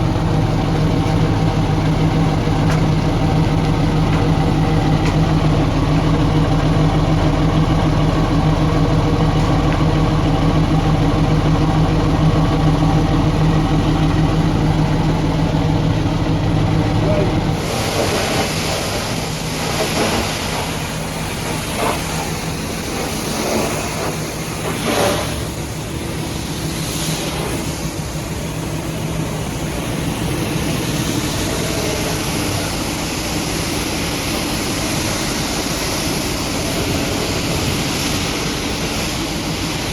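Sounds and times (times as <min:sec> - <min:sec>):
truck engine idling: 0:00.0 - 0:39.9
high-pressure water spray hissing: 0:17.5 - 0:39.9.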